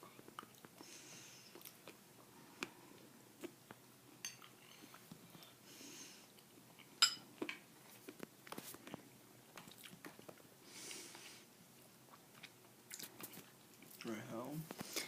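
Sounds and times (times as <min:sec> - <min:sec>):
person chewing: 0:00.0 - 0:05.6, 0:06.3 - 0:11.1, 0:11.8 - 0:14.1
soft breath: 0:00.8 - 0:01.6, 0:04.7 - 0:06.4, 0:10.6 - 0:11.5.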